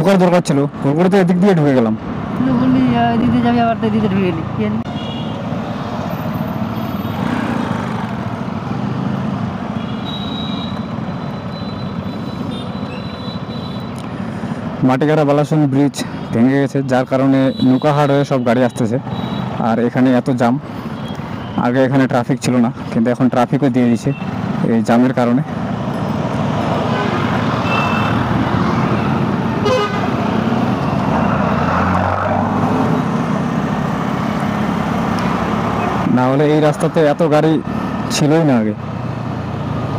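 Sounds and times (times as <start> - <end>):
road traffic noise: 0.0 - 39.9
vehicle horn toot: 4.9 - 5.4, 9.8 - 10.8, 26.9 - 28.2, 29.6 - 30.1
loud horn beep: 9.8 - 13.9, 26.9 - 28.2, 29.0 - 30.1.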